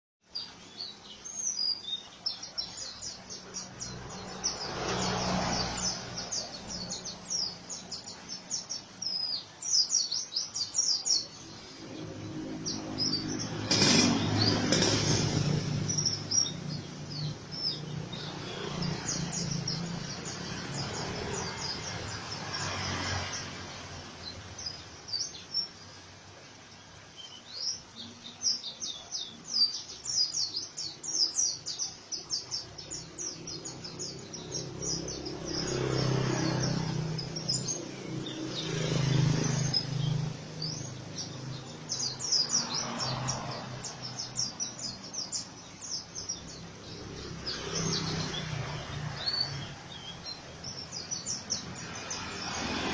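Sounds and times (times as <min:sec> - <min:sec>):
bird singing fast falling chirps: 0:00.3 - 0:26.1.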